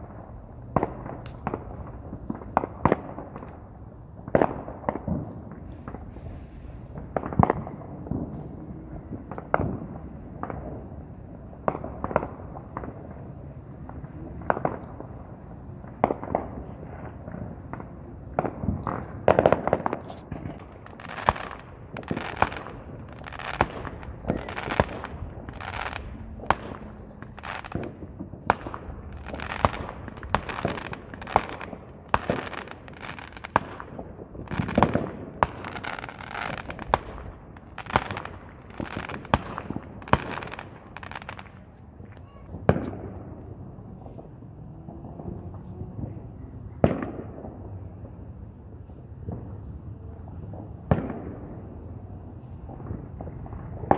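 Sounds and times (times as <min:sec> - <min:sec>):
fireworks bangs: 0:00.0 - 0:53.9.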